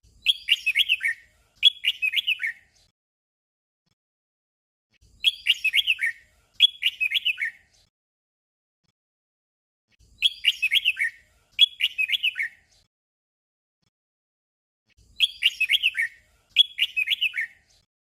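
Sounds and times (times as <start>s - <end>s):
bird whistled song: 0.1s - 2.9s, 5.0s - 7.8s, 10.0s - 12.8s, 15.0s - 17.9s.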